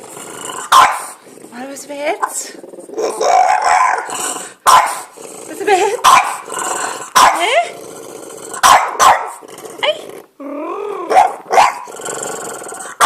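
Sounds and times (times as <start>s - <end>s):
dog growling: 0.0s - 13.0s
dog barking: 0.7s - 1.2s, 3.6s - 5.1s, 6.0s - 6.4s, 7.2s - 7.6s, 8.6s - 9.4s, 11.1s - 11.9s.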